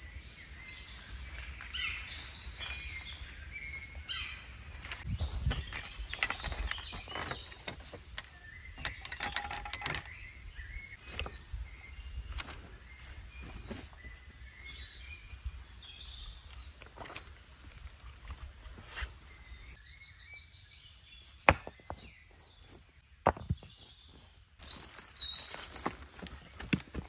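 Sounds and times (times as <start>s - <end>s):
birds whistling and trilling: 0.0s - 17.3s, 18.8s - 27.0s.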